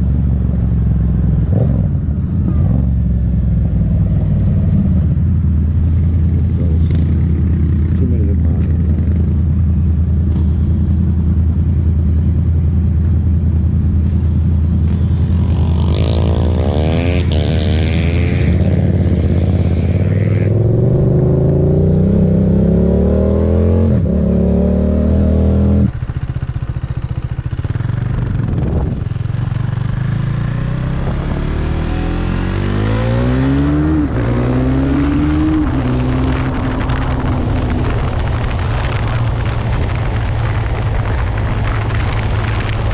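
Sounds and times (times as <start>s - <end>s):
motorcycle accelerating through upshifts: 0.0s - 10.7s, 14.7s - 26.3s, 27.1s - 42.9s
motorcycle engine revving: 0.0s - 12.2s, 13.6s - 42.9s.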